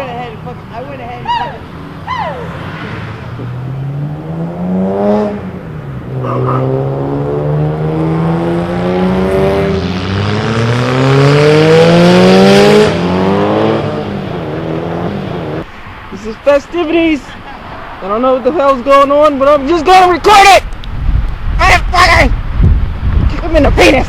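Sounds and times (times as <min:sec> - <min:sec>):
car engine accelerating: 0:01.6 - 0:15.6.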